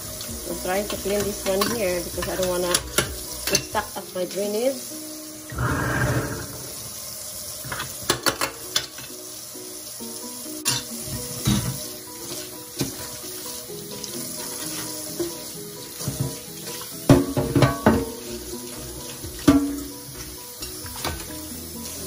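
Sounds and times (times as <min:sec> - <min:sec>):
soft background tune: 0:00.0 - 0:22.0
tap water running into sink: 0:00.0 - 0:22.0
knocks and clatters in sink: 0:07.7 - 0:09.0, 0:10.7 - 0:11.8, 0:16.0 - 0:18.4, 0:19.1 - 0:21.3.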